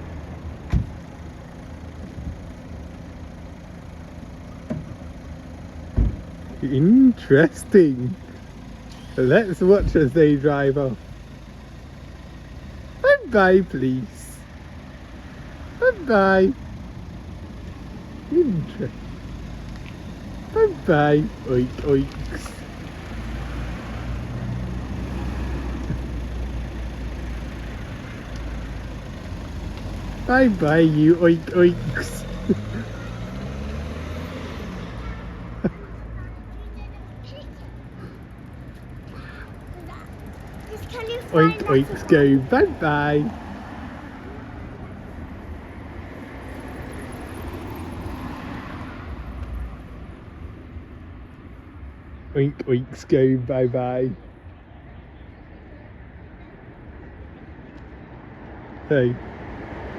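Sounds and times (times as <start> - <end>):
vehicle engine running: 0.0 - 59.6
vehicle driving past: 18.2 - 35.6.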